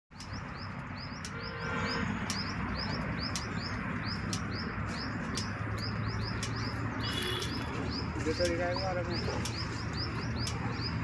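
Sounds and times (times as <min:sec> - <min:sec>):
bird chirping: 0:00.1 - 0:11.0
sharp ticks: 0:00.1 - 0:11.0.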